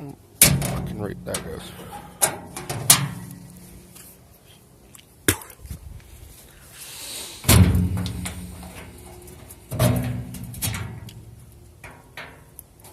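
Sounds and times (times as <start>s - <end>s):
low steady hum: 0.0s - 6.8s, 7.4s - 12.9s
hay baler metallic clank: 0.4s - 3.8s, 7.4s - 12.5s.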